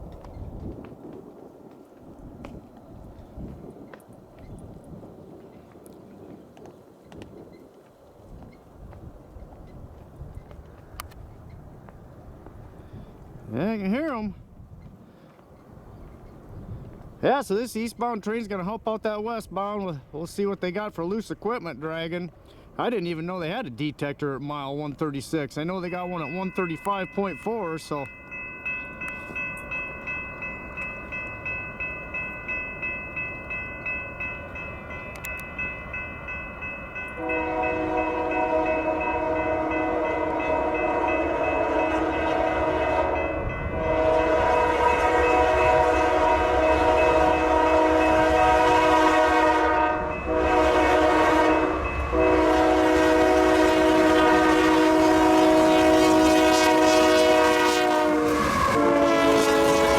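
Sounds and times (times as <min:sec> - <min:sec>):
locomotive horn blasts: 0:37.1 - 0:59.9.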